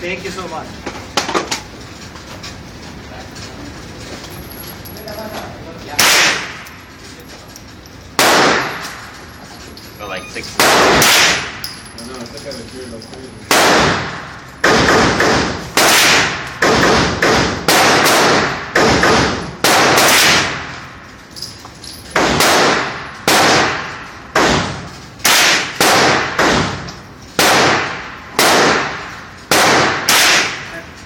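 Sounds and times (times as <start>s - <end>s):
gunshots with echo: 6.0s - 6.6s, 8.2s - 9.0s, 10.6s - 11.6s, 13.5s - 20.8s, 22.2s - 26.8s, 27.4s - 30.7s.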